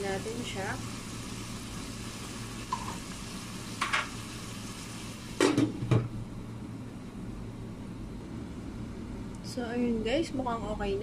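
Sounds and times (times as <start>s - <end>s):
vegetables sizzling in a wok: 0.0s - 6.3s
glass lid knocking on a wok: 2.7s - 3.0s.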